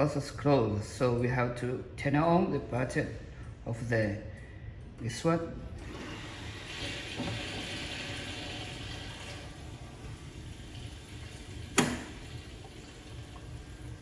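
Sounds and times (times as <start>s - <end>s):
steady low hum: 0.0s - 6.7s
water flowing through cooling system: 5.7s - 14.0s.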